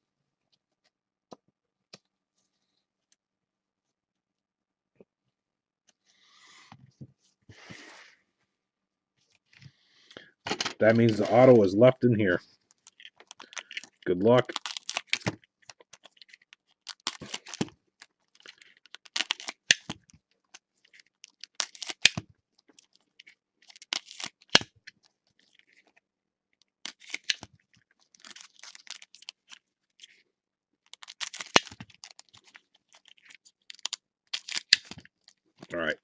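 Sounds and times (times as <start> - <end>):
trading cards rustling and sliding: 6.1 - 8.2, 10.5 - 17.7, 30.9 - 35.4.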